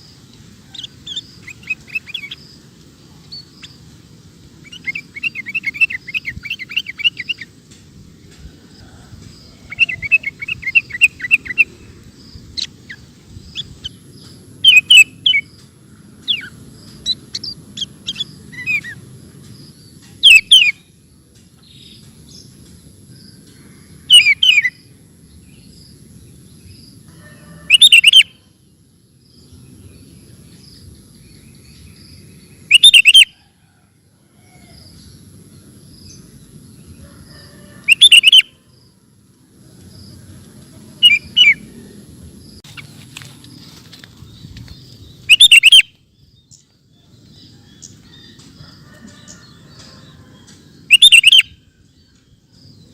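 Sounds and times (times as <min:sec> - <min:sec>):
bird chattering trills: 0:04.6 - 0:07.5, 0:09.6 - 0:15.6, 0:27.7 - 0:28.4, 0:32.6 - 0:33.3, 0:37.8 - 0:38.5, 0:41.0 - 0:41.8, 0:45.2 - 0:46.0, 0:47.8 - 0:51.5.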